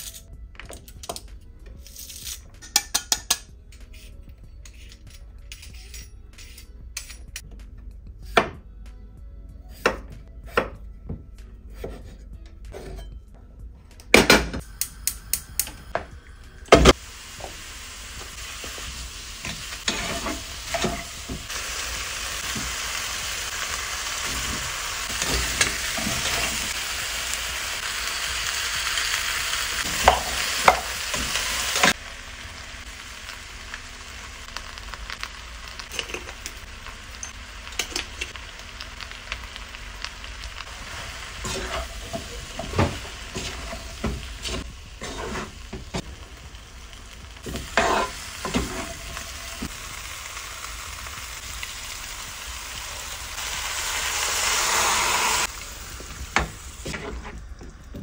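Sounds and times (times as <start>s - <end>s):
chicken and onions sizzling: 14.6s - 58.0s
spoon scraping and knocking pot: 47.5s - 48.9s.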